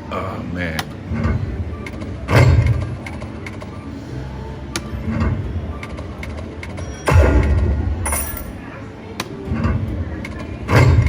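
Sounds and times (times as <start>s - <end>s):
casino background noise: 0.0s - 11.0s
slot machine jingle music: 6.8s - 8.6s
slot reels landing hit: 7.1s - 8.7s.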